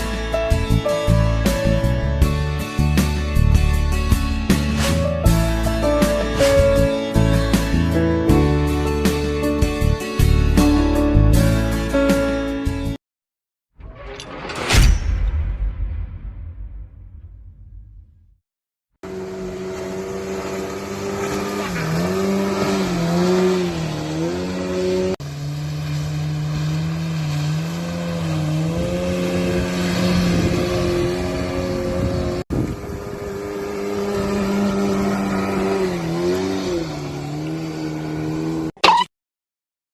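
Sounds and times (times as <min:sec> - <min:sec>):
motorboat engine running: 0:19.0 - 0:38.7.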